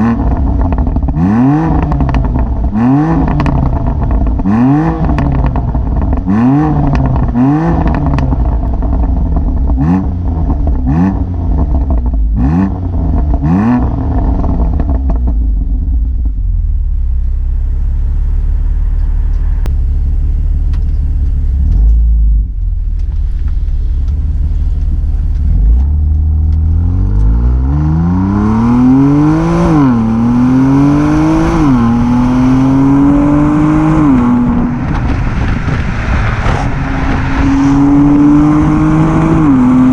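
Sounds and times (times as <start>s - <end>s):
car engine revving: 0.0s - 39.9s
exhaust crackles: 0.0s - 39.9s.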